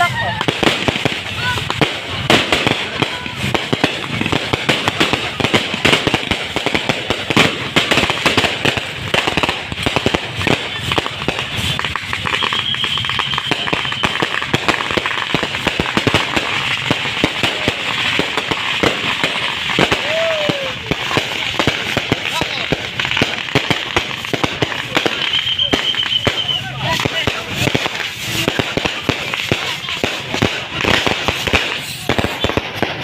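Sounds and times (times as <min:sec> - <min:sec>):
fireworks and firecrackers crackling: 0:00.0 - 0:33.0
thin firework whistle: 0:11.7 - 0:14.8, 0:24.9 - 0:27.2.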